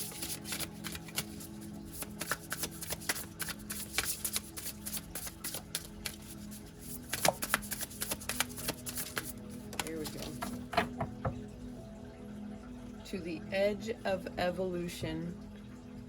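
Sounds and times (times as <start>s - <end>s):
cards being shuffled: 0.0s - 11.1s.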